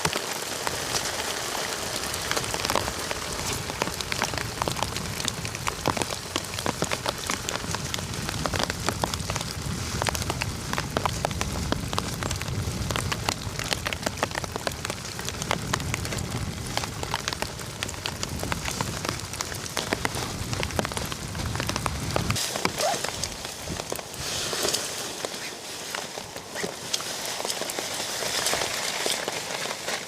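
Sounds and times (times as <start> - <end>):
rain drops tapping: 0.0 - 30.0
low rumble: 2.4 - 22.4.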